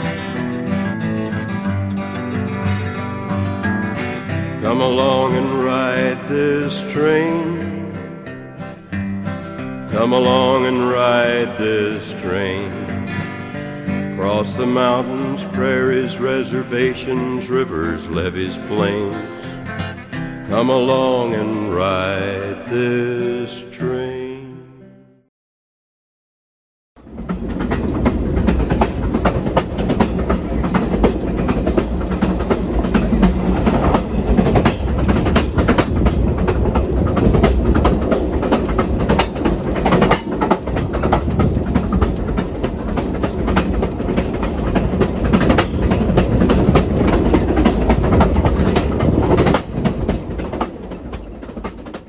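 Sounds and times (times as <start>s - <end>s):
train rumbling on rails: 0.0s - 1.5s, 27.0s - 52.0s
wheels clicking over track: 27.0s - 52.0s.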